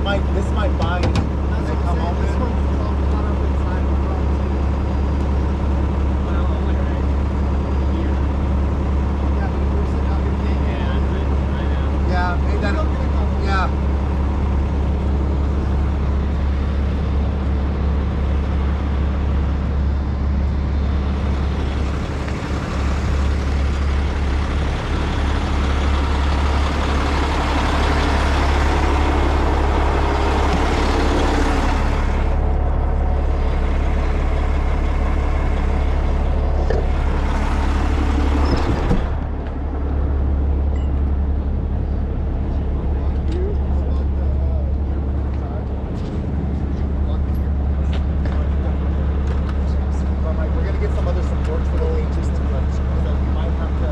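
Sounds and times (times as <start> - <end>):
diesel truck engine running: 0.0 - 53.9.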